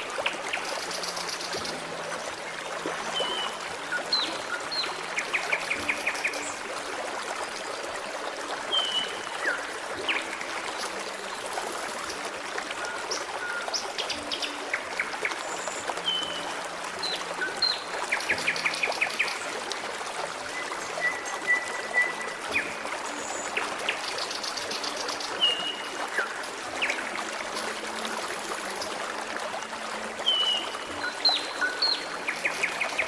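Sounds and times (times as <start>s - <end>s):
stream flowing: 0.0s - 33.0s
birds singing: 3.0s - 6.6s, 8.7s - 10.9s, 12.9s - 19.4s, 20.5s - 27.6s, 30.2s - 33.0s.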